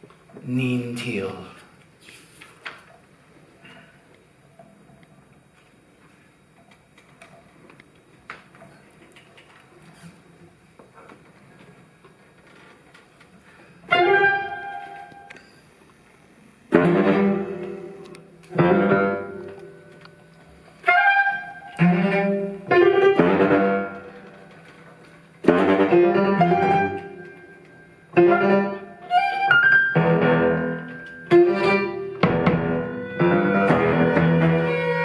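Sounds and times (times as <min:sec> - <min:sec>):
accented bowed string chords: 0:16.7 - 0:19.4, 0:31.3 - 0:35.0.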